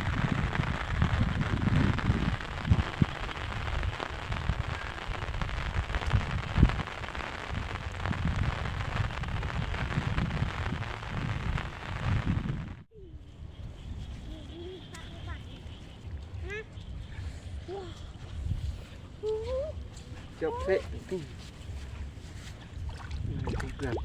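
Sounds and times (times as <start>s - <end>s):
rain pattering: 0.0s - 12.9s.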